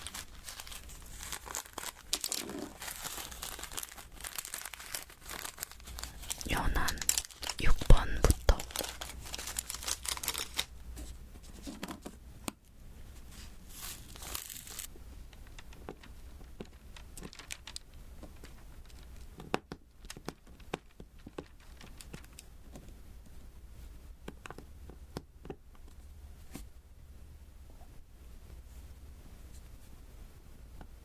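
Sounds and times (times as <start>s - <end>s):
crinkly rustle: 0.0s - 12.1s, 13.0s - 22.6s.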